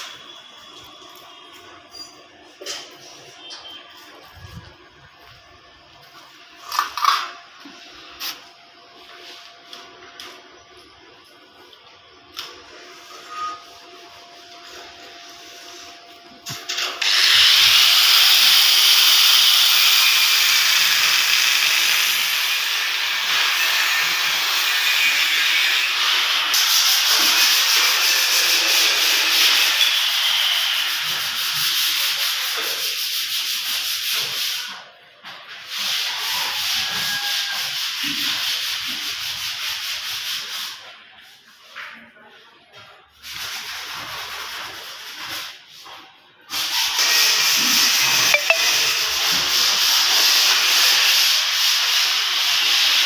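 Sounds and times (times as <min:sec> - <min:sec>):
arc welding crackling hiss: 0:16.7 - 0:33.6, 0:46.5 - 0:53.0.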